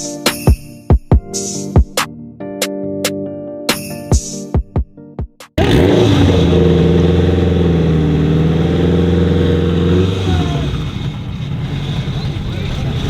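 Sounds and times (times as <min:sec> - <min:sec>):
car engine revving: 0:05.6 - 0:13.0.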